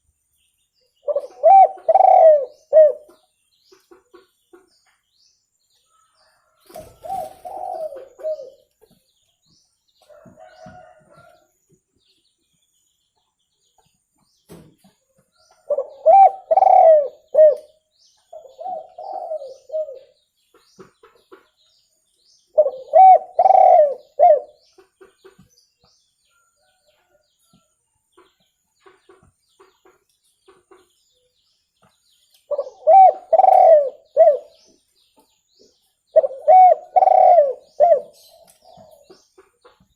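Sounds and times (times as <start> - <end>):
dove cooing: 1.0 - 3.1, 6.8 - 8.7, 15.7 - 17.7, 18.4 - 20.1, 22.6 - 24.6, 32.5 - 34.6, 36.1 - 39.0.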